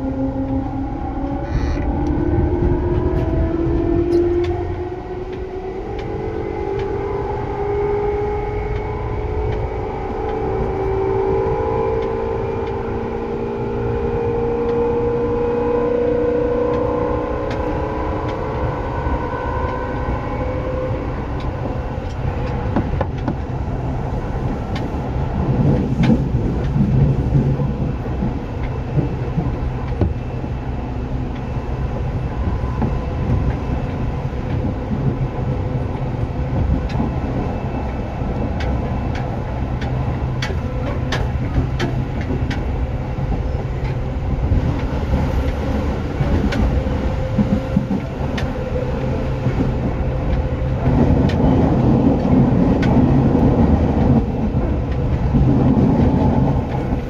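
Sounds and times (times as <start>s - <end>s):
train rumble: 0.0s - 57.0s
wheels clicking on rails: 0.0s - 57.0s.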